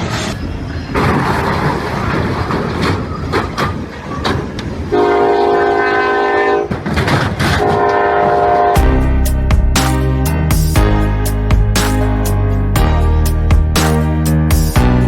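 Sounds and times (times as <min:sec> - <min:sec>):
train rumbling with clicking wheels: 0:00.0 - 0:09.0
train horn blasts: 0:04.9 - 0:06.8, 0:07.6 - 0:09.1.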